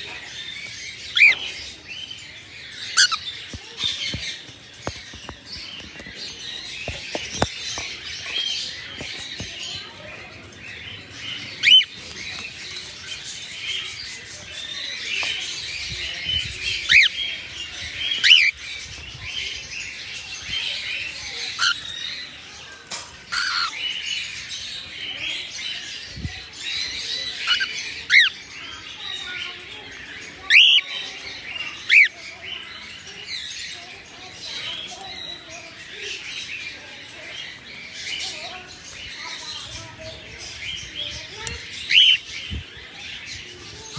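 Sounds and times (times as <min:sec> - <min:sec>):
cockatiels chirping: 0:00.1 - 0:01.8, 0:02.8 - 0:10.4, 0:11.0 - 0:15.4, 0:16.1 - 0:19.0, 0:20.8 - 0:22.1, 0:23.3 - 0:23.8, 0:26.6 - 0:28.5, 0:30.2 - 0:30.8, 0:31.6 - 0:32.7, 0:41.4 - 0:42.4.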